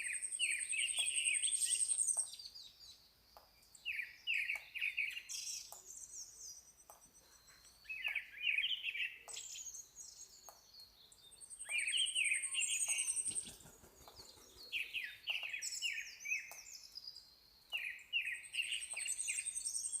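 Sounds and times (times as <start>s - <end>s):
bird song of quick falling notes: 3.8s - 20.0s.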